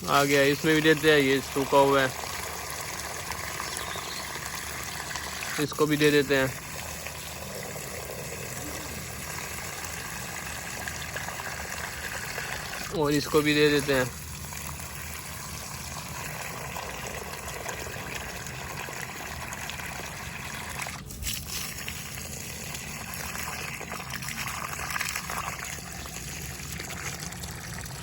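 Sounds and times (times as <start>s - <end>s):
water running from hose: 0.0s - 28.0s
water trickling onto plants: 0.0s - 28.0s.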